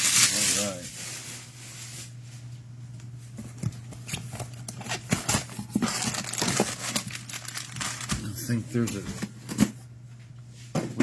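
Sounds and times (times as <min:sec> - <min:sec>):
card packs clicking and tapping: 0:03.4 - 0:09.8.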